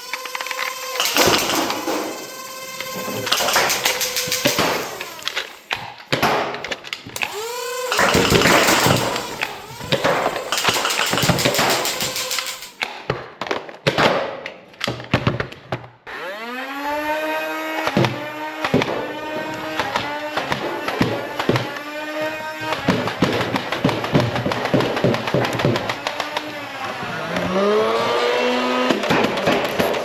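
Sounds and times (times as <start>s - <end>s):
small electric motor whining: 0.0s - 6.0s, 7.1s - 12.8s, 16.1s - 28.8s
toy blaster clicks and snaps: 0.0s - 13.0s.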